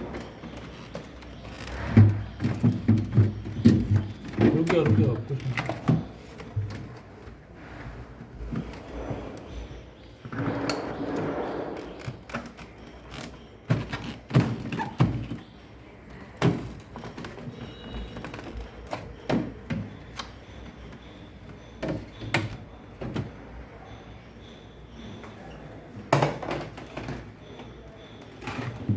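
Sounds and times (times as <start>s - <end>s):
tools thunking and knocking: 0.0s - 7.3s.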